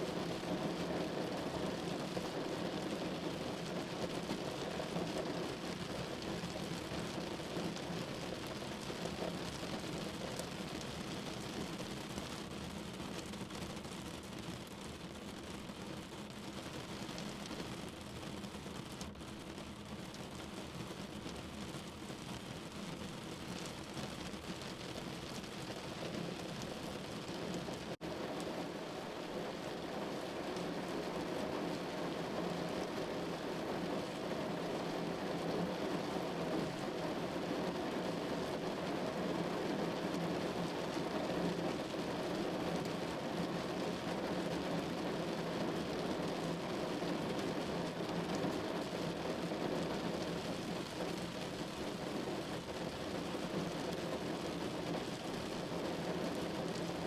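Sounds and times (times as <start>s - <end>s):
rain on a window: 0.0s - 57.0s.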